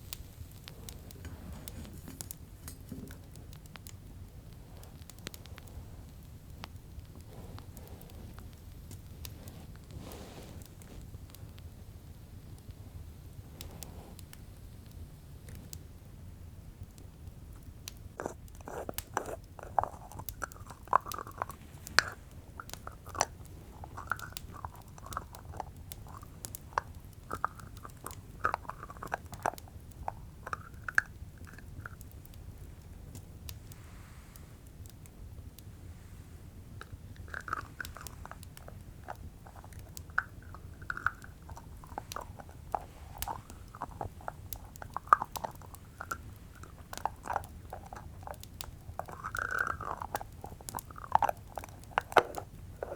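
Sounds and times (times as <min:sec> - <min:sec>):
jar lid twisting and scraping: 0:18.2 - 0:32.0, 0:36.8 - 0:52.9.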